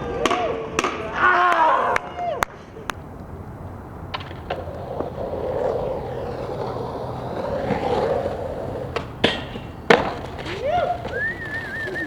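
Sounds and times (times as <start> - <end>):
skateboard clicks: 2.8 - 12.0
skateboard wheels rumbling: 2.8 - 12.0.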